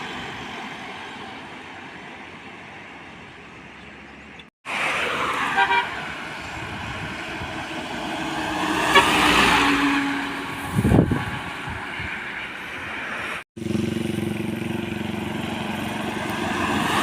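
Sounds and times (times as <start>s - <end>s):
road traffic: 0.0s - 17.0s
vehicle passing close: 4.7s - 17.0s.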